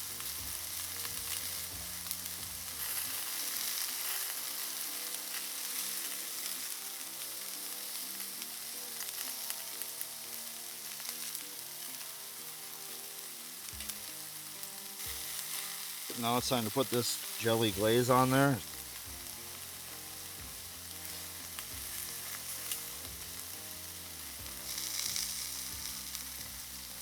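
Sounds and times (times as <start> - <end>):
fire pops and crackles: 0.0 - 12.1, 13.6 - 27.0
meat sizzling over fire: 0.0 - 27.0.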